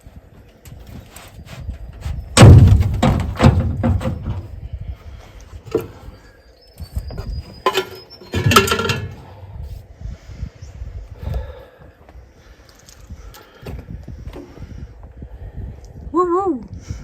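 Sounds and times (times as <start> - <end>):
heavy metal thuds and knocks: 2.4 - 4.6, 7.7 - 9.3.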